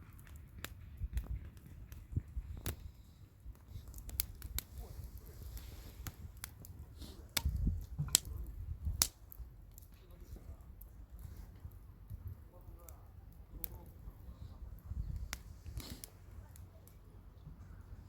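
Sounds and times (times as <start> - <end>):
campfire pops and snaps: 0.0 - 17.1
low rumble of burning: 0.0 - 18.0.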